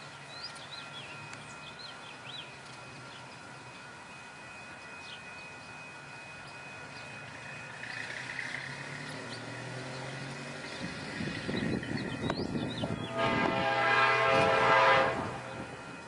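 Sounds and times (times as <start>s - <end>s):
train rumble: 0.0s - 16.0s
birds chirping: 4.4s - 13.4s.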